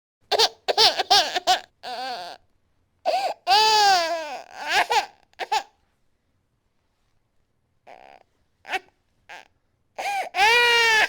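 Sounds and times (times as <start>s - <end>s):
baby crying: 0.3s - 2.4s, 3.1s - 5.7s, 7.9s - 11.0s.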